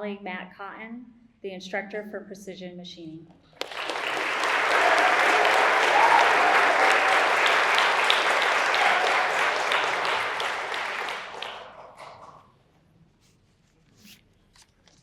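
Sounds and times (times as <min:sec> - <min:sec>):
audience applauding: 0:03.6 - 0:12.4.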